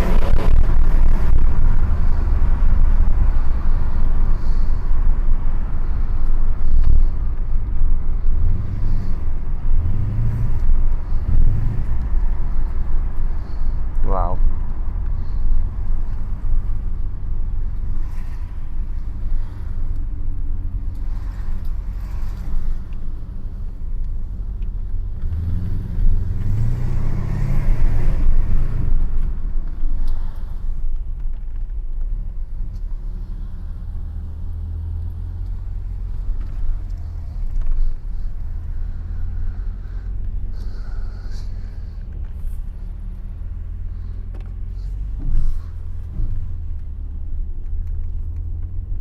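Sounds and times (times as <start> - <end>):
car engine deep exhaust rumble: 0.0 - 49.0.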